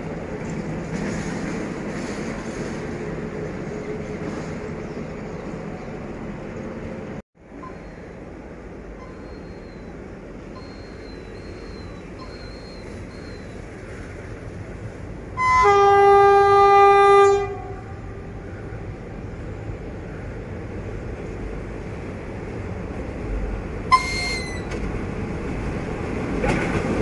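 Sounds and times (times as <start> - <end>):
train rumbling past: 0.0 - 27.0
locomotive horn blast: 15.4 - 18.4, 23.9 - 24.8.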